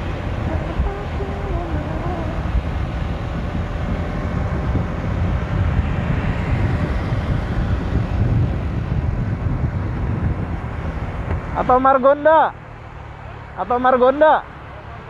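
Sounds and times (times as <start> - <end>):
wind buffeting microphone: 0.0 - 12.0
motorcycle running: 0.0 - 15.0.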